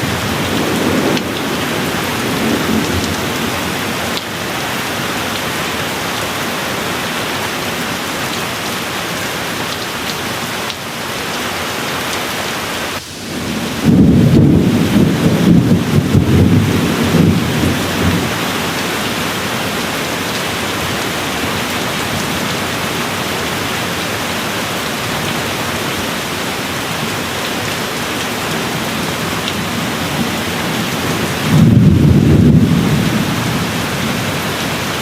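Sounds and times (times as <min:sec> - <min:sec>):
low rumble of thunder: 0:00.0 - 0:04.0, 0:13.1 - 0:19.4, 0:29.6 - 0:34.4
steady rain: 0:00.0 - 0:35.0.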